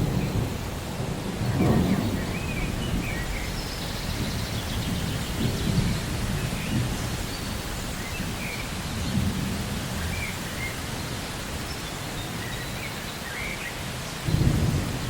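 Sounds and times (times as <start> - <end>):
thunder rumbles: 0.0 - 10.9, 14.2 - 15.0
steady rain: 0.0 - 15.0.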